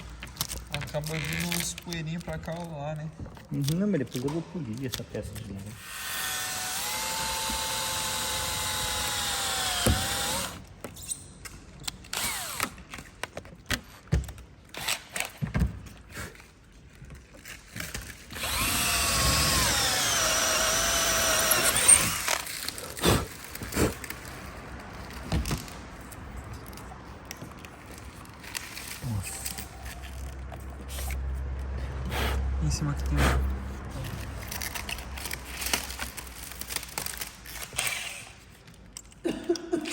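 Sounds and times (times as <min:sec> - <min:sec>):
electric drill whining: 0:05.8 - 0:10.6, 0:12.2 - 0:12.7, 0:18.3 - 0:22.8.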